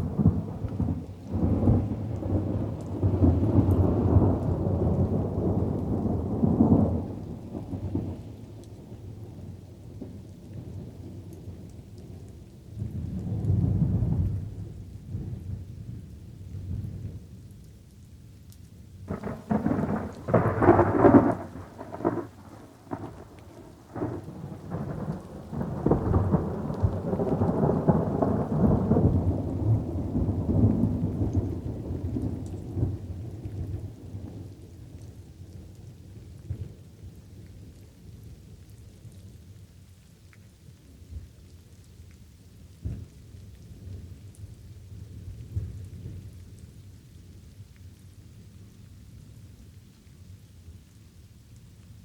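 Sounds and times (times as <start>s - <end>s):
thunder cracking and rumbling: 0.0s - 8.2s, 19.1s - 36.8s, 42.8s - 46.6s
light rain falling: 0.0s - 52.0s.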